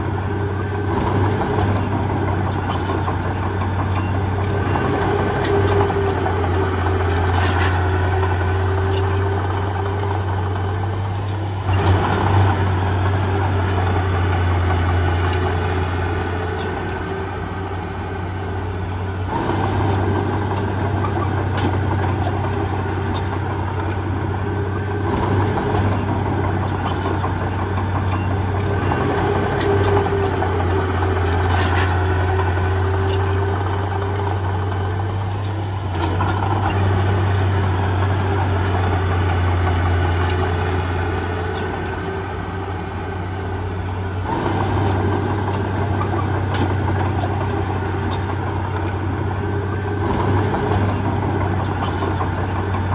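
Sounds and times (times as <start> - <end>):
diesel engine running: 0.0 - 52.9
short clicks and clanks: 18.9 - 42.2, 43.8 - 52.9.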